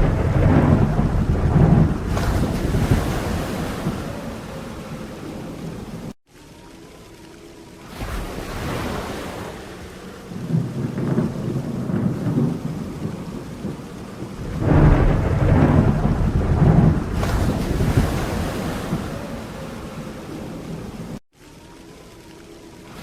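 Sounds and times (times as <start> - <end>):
rolling thunder: 0.0 - 6.2, 10.3 - 21.2
rain falling steadily: 0.0 - 23.0.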